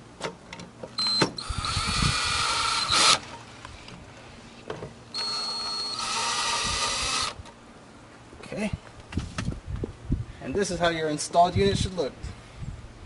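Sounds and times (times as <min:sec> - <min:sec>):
power drill motor whining: 0:01.0 - 0:03.2, 0:05.1 - 0:07.4.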